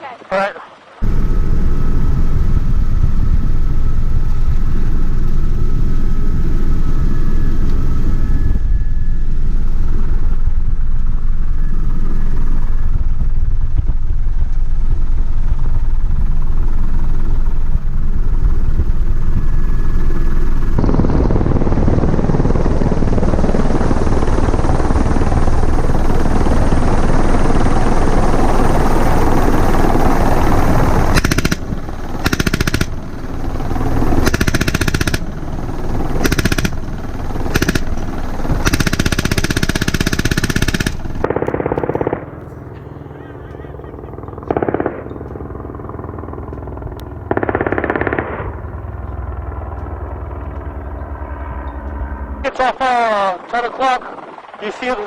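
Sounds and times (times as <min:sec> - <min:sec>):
faint whine: 0:01.0 - 0:38.6, 0:40.6 - 0:55.0
helicopter engine and rotor: 0:01.0 - 0:55.0
rapid sharp reports: 0:52.4 - 0:55.0.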